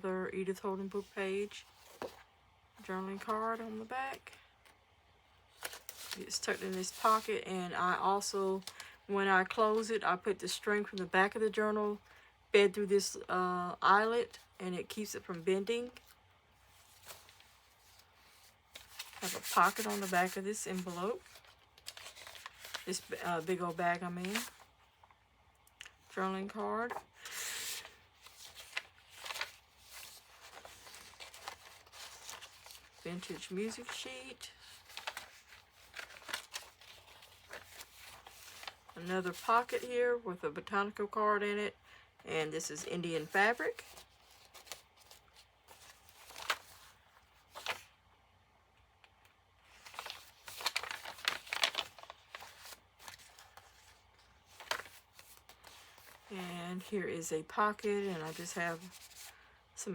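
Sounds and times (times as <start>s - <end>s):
paper rustling and sliding: 1.6s - 2.2s, 5.5s - 7.3s, 16.6s - 24.7s, 26.9s - 39.4s, 43.2s - 47.9s, 49.7s - 56.3s.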